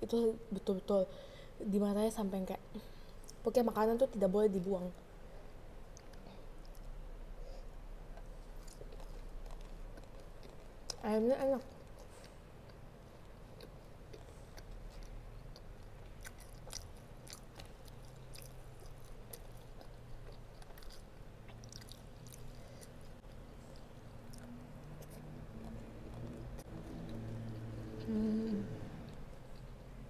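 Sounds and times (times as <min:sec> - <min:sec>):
person chewing food: 0:05.8 - 0:11.1, 0:11.7 - 0:30.0
person humming: 0:27.8 - 0:29.0.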